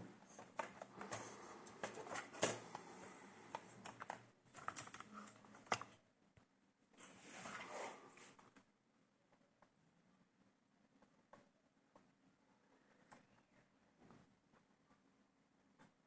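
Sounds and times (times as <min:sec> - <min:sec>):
hands clicking and tapping on laptop: 0:00.4 - 0:02.9, 0:03.5 - 0:05.9.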